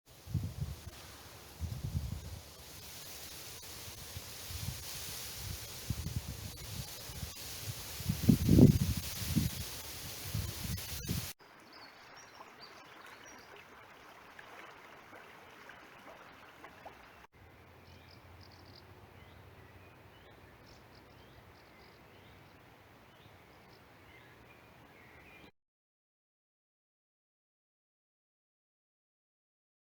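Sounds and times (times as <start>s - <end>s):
rustling noise: 0.3s - 11.4s
small birds chirping: 8.3s - 14.7s, 15.7s - 25.5s
flowing river water: 8.6s - 25.2s.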